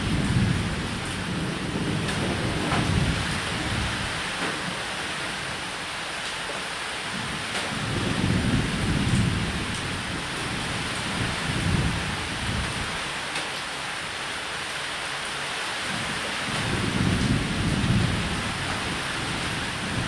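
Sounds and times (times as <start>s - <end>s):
low rolling thunder: 0.0s - 5.7s, 7.1s - 13.2s, 15.9s - 20.0s
steady rain: 0.0s - 20.0s.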